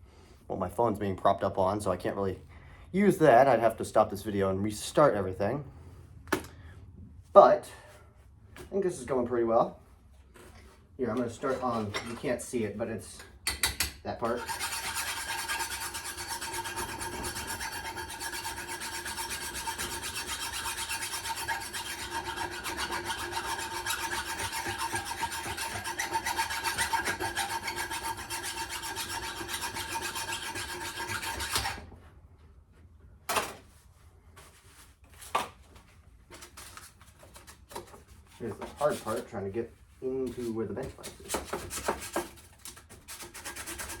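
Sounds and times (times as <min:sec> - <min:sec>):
abrasive scraping rust off steel: 0:14.2 - 0:31.9.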